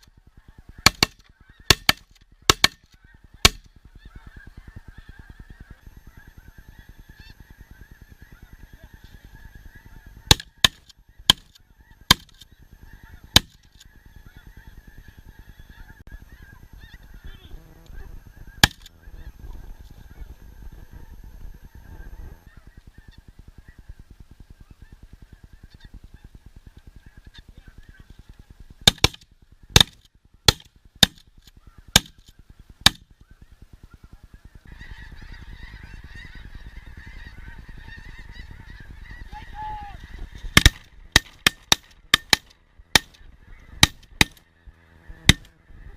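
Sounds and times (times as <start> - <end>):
geese honking: 0.0 - 45.9
shotgun shots: 0.8 - 3.7, 10.3 - 11.5, 12.1 - 12.4, 18.6 - 19.0, 40.5 - 43.2, 43.8 - 44.4.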